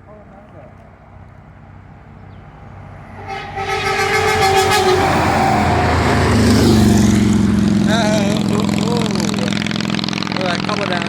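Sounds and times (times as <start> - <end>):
truck engine and tyre noise: 0.0 - 11.0
truck air horn blast: 2.8 - 7.8.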